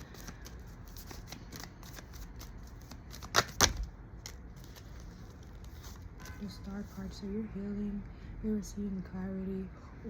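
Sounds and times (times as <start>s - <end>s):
cards shuffling: 0.0s - 6.1s.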